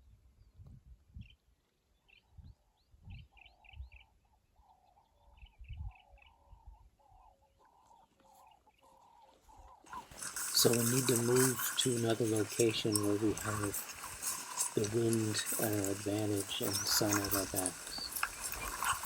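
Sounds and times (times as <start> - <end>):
high bird chirps: 9.8 - 19.0.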